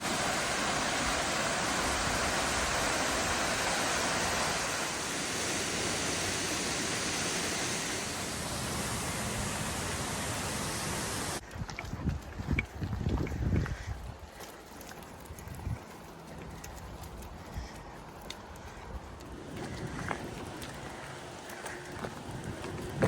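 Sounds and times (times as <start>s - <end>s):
waterfall roaring: 0.0s - 11.4s.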